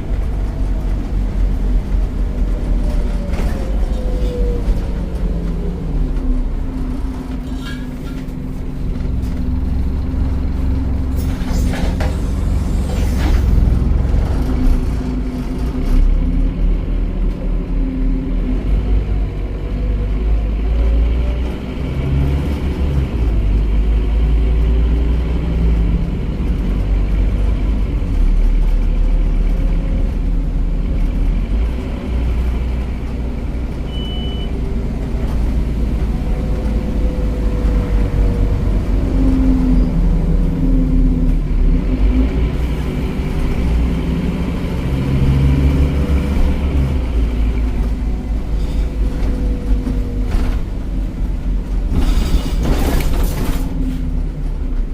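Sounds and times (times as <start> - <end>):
bus diesel engine running: 0.0 - 54.9
short high beep: 33.9 - 34.5.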